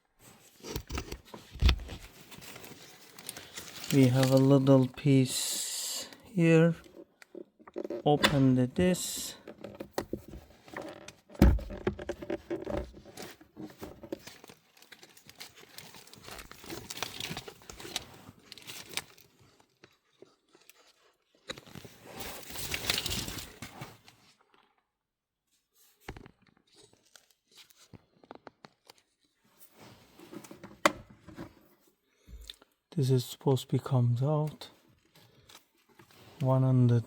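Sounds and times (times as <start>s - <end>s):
rustling and scraping plastic trim: 0.2s - 5.0s, 6.7s - 19.3s.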